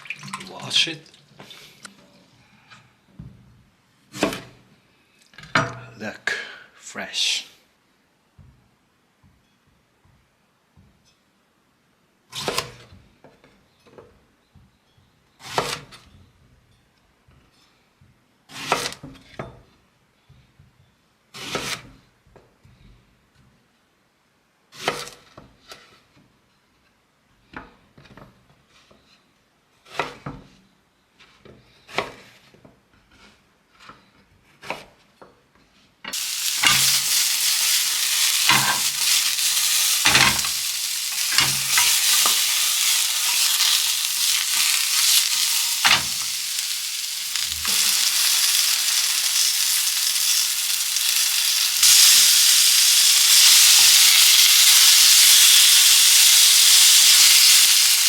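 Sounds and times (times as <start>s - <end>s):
vegetables sizzling in frying pan: 36.1s - 58.0s.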